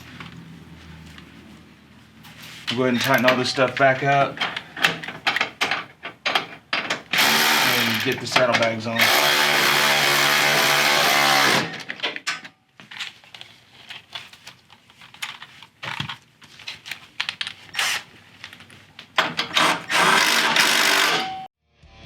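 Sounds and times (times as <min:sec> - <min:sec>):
hand tools clicking and knocking: 0:02.7 - 0:12.5, 0:19.2 - 0:21.4
power tool running: 0:07.1 - 0:08.1, 0:09.0 - 0:11.8, 0:19.5 - 0:21.5.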